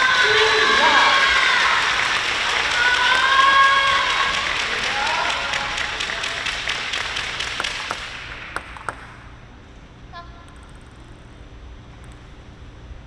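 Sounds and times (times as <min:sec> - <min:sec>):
crowd applause: 0:00.0 - 0:08.9
table tennis ball clicks: 0:07.6 - 0:09.2.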